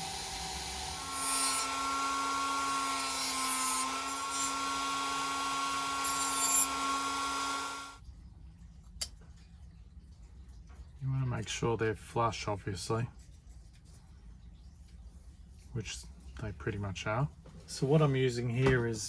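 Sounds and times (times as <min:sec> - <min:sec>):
rotary power tool whining: 0:00.0 - 0:08.0.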